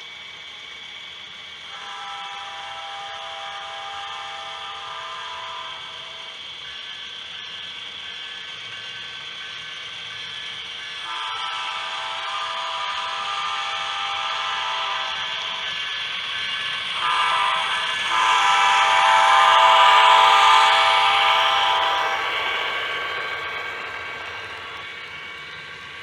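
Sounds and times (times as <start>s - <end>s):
locomotive engine hiss: 0.0s - 26.0s
multi-note air horn blasts: 17.0s - 22.0s.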